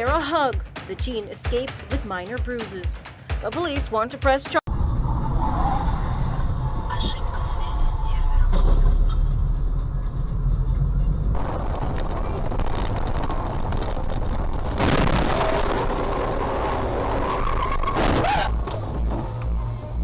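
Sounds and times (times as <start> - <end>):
traffic noise: 4.7 - 12.6
car tyres screeching: 16.9 - 20.0.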